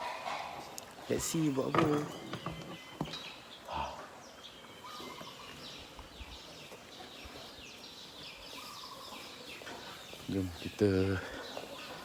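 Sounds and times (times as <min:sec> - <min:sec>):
birds chirping: 0:00.0 - 0:12.0
faint outdoor background noise: 0:00.0 - 0:12.0.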